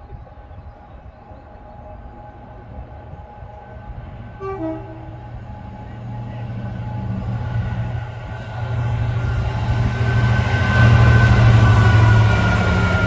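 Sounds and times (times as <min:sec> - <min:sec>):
train engine rumble: 0:00.0 - 0:13.0
two-tone train horn: 0:04.3 - 0:07.5.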